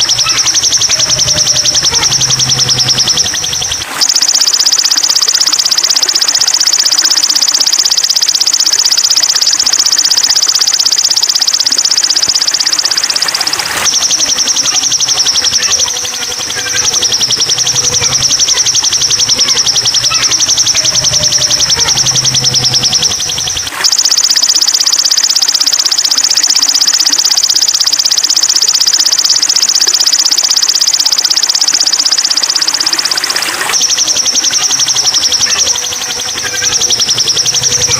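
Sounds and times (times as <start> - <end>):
songbird trilling: 0.0 - 3.9.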